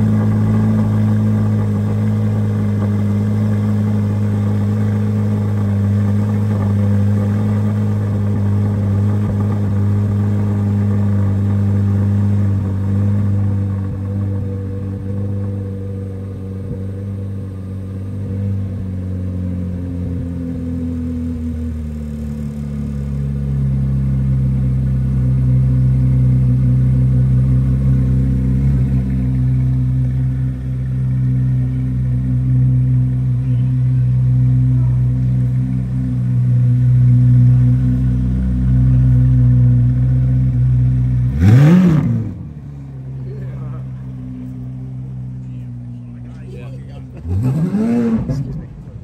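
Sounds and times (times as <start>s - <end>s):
car engine idling: 0.0s - 49.0s
engine rev blip: 40.4s - 42.5s, 43.7s - 49.0s.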